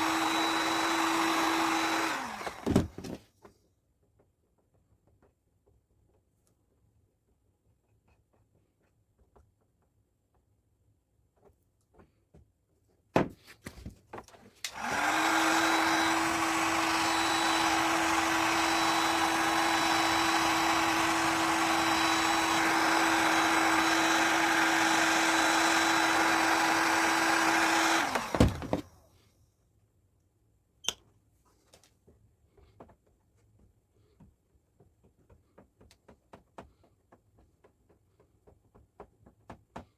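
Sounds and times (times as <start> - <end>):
heat gun blowing air: 0.0 - 2.9, 14.7 - 28.9
click: 30.8 - 31.0.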